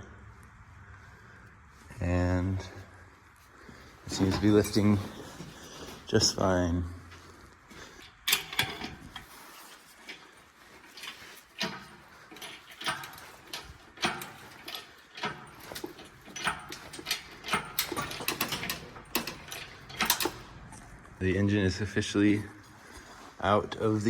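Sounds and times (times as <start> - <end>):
engine hoist metallic clanks: 4.1 - 21.0.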